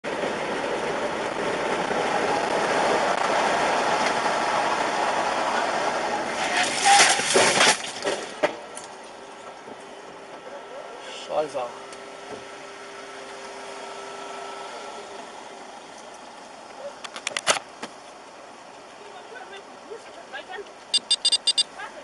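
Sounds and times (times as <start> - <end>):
car road and engine noise: 0.0 - 22.0
car collision crunch: 6.4 - 8.8.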